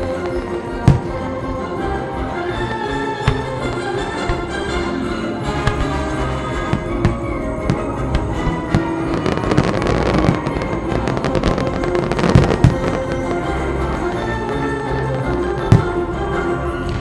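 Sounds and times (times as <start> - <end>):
fireworks bursting and crackling: 0.0 - 17.0
orchestral music: 0.0 - 17.0
heavy firework booms: 0.6 - 1.8, 3.2 - 14.1, 15.6 - 16.3.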